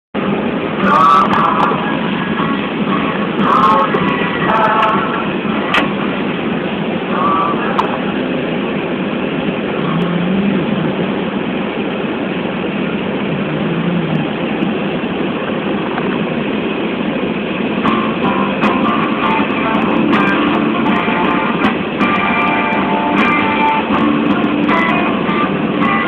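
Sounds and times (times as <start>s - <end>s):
car engine and tyre noise: 0.2s - 26.0s
music with guitar: 0.4s - 8.1s, 17.7s - 26.0s.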